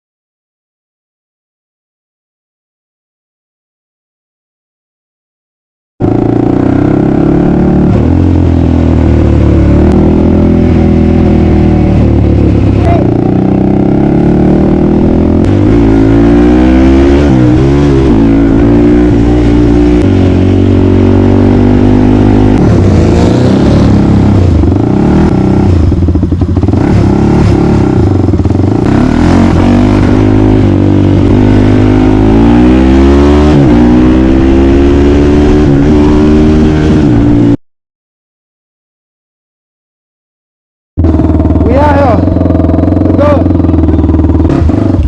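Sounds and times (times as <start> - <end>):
off-road vehicle engine revving: 6.0 - 37.6, 41.0 - 45.0.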